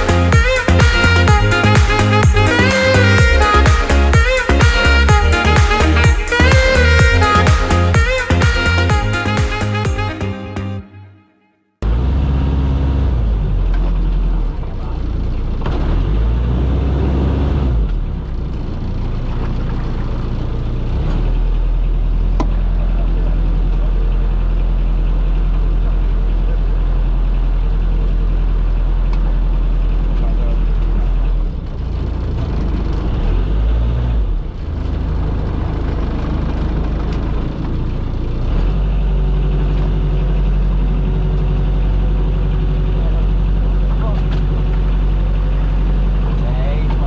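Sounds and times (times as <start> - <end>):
boat engine humming: 0.0 - 11.2, 17.2 - 33.0, 34.3 - 47.0
wind: 11.8 - 47.0.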